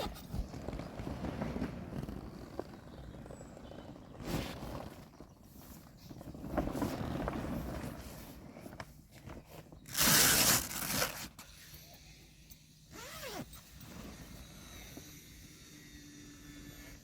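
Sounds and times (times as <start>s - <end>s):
plastic fabric rustling: 0.0s - 11.4s.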